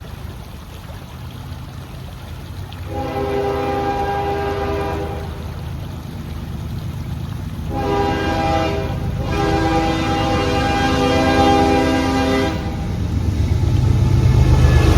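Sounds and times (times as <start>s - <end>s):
low rumble of train: 0.0s - 14.9s
locomotive air horn blasts: 2.9s - 5.4s, 7.7s - 13.0s, 14.5s - 14.9s.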